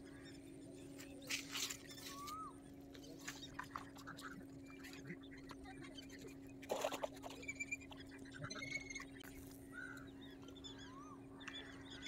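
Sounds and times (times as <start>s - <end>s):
birds chirping and whistling: 0.0s - 12.0s
steady low hum: 0.0s - 12.0s.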